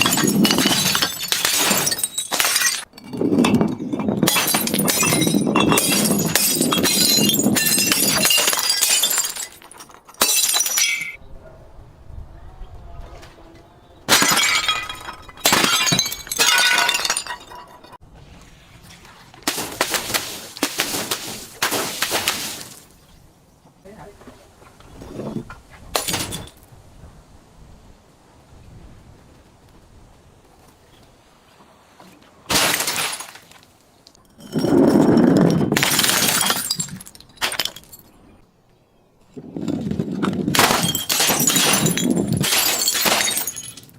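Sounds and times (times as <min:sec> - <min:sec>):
glass bottles smashing: 0:00.0 - 0:11.2, 0:14.1 - 0:18.0, 0:26.0 - 0:26.6, 0:32.5 - 0:33.6, 0:34.2 - 0:38.3, 0:39.6 - 0:43.9.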